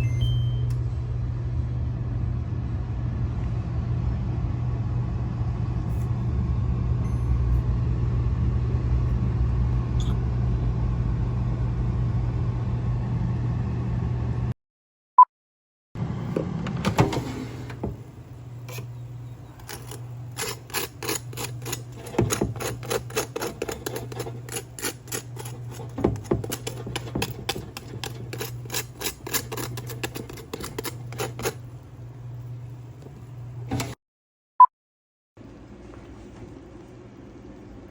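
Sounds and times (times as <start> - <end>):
steady low hum: 16.0 - 34.0.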